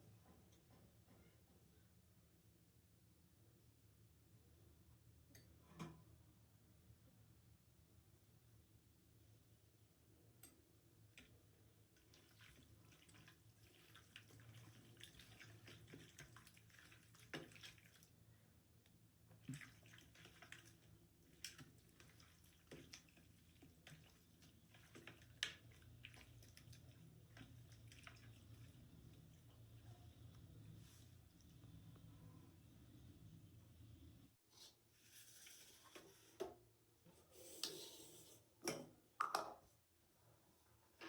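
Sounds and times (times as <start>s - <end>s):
water drips and small splashes: 11.9s - 18.2s, 19.3s - 31.7s.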